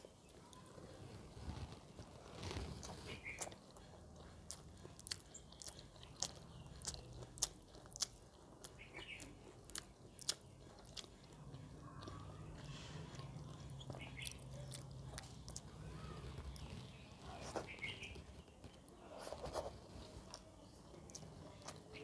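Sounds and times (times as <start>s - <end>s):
faint low hum: 0.0s - 22.0s
person chewing crunchy food: 0.1s - 22.0s.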